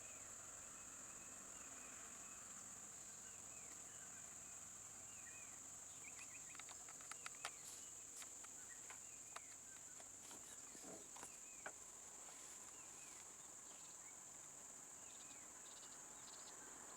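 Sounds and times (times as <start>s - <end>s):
small chirps: 5.2s - 14.0s
faint clicks: 5.5s - 11.8s.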